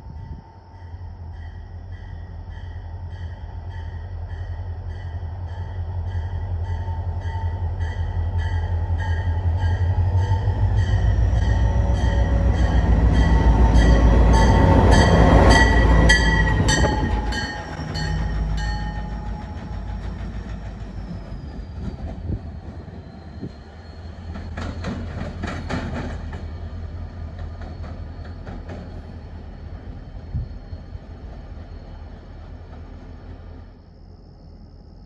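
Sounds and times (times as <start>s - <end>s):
locomotive engine rumble: 0.0s - 33.9s
high wheel squeal: 10.2s - 26.6s.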